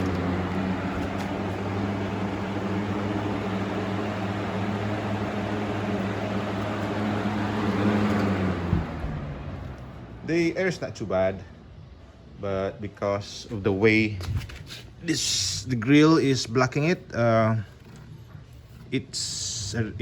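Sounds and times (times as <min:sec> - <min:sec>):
box fan air rush: 0:00.0 - 0:10.2
low motor hum: 0:00.0 - 0:10.6.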